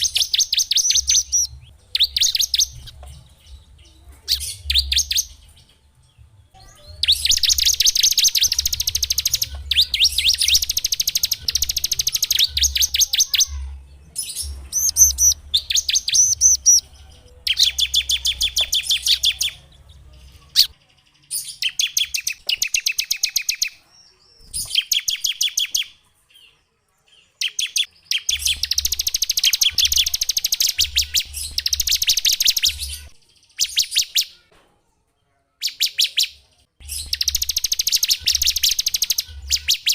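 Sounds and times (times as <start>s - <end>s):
songbird singing sharp notes: 0.0s - 26.5s, 27.1s - 34.5s, 35.6s - 39.9s.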